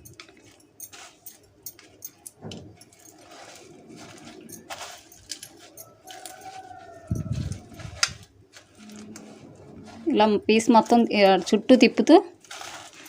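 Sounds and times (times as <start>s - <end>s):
cornflakes crunching: 0.1s - 2.0s, 2.8s - 13.0s.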